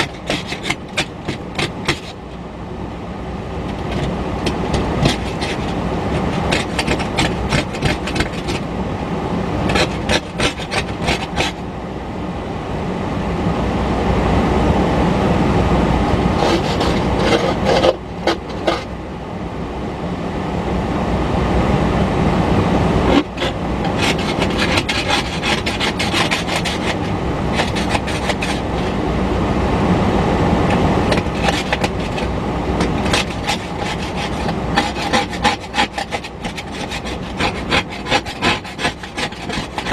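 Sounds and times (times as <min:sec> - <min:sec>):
freight train rumble: 0:00.0 - 0:39.9
train wheels clicking on rails: 0:03.7 - 0:08.6, 0:23.1 - 0:28.9, 0:30.7 - 0:39.9.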